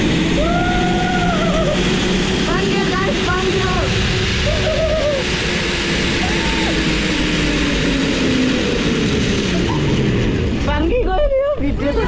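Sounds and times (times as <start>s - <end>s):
zip line trolley whir: 0.0s - 12.0s
person crying out: 0.4s - 1.9s, 4.4s - 5.3s.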